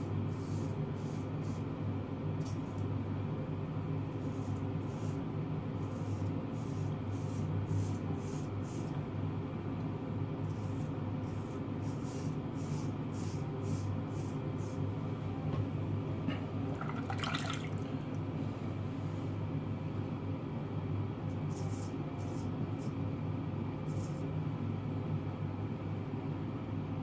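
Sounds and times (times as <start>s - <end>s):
steady low hum: 0.0s - 27.0s
razor scraping stubble: 10.5s - 14.8s.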